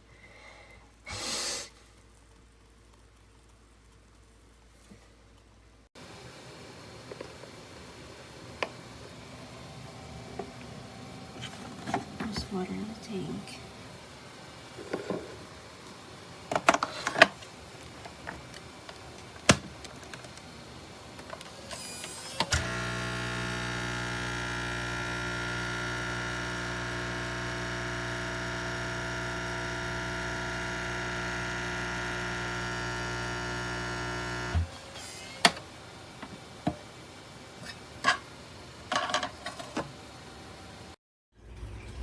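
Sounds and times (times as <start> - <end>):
coffee machine pump buzzing: 21.4 - 35.4.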